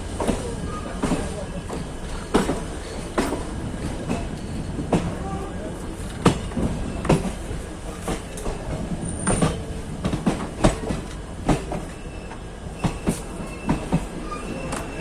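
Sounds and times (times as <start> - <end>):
train coaches rumbling: 0.0 - 15.0
high wheel squeal: 11.9 - 15.0.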